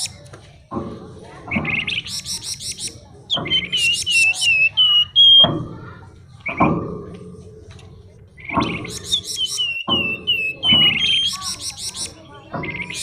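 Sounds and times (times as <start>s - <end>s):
songbird trilling and whistling: 1.5s - 5.6s, 6.4s - 6.8s, 8.4s - 13.0s.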